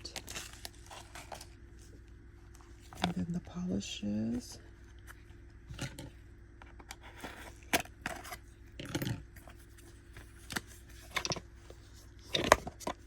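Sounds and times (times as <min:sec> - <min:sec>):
packaging rustling: 0:00.0 - 0:01.6.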